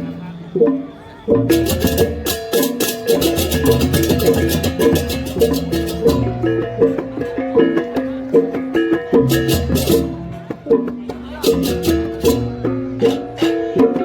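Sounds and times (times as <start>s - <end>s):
rapid cymbal clashing: 1.5s - 6.4s.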